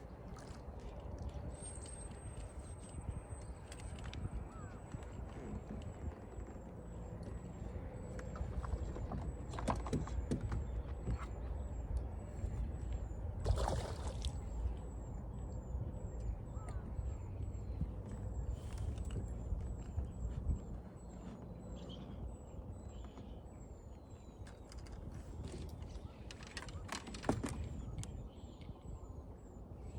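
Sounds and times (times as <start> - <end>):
steady low rumble: 10.6 - 24.3.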